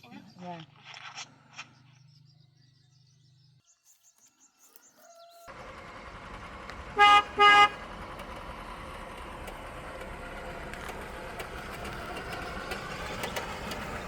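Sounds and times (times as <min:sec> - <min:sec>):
road noise: 0:00.0 - 0:03.8, 0:04.8 - 0:14.0
vehicle engine: 0:05.4 - 0:14.0
vehicle horn beep: 0:06.9 - 0:07.9.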